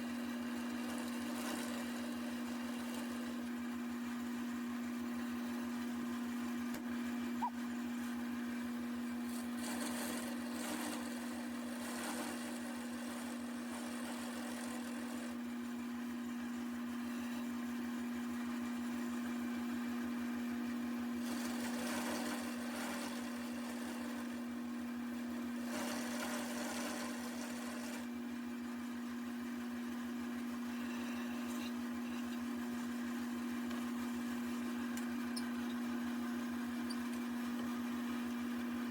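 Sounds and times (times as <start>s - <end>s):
turning tool cutting wood: 0.0s - 3.6s, 9.2s - 15.4s, 21.2s - 24.6s, 25.4s - 28.1s, 30.6s - 32.5s
wood lathe motor hum: 0.0s - 3.7s, 9.1s - 15.5s, 16.4s - 17.6s, 21.1s - 28.2s, 30.4s - 35.0s.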